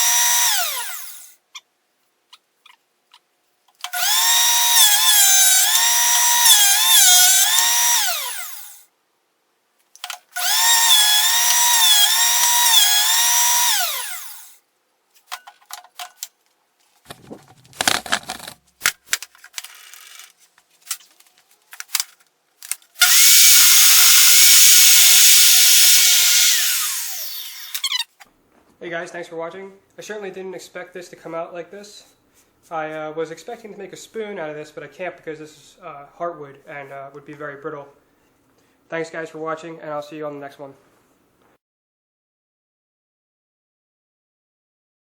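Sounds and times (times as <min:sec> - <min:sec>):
woodworking machine motor whine: 0:00.0 - 0:01.2, 0:04.0 - 0:08.8, 0:10.4 - 0:14.5, 0:23.0 - 0:27.9.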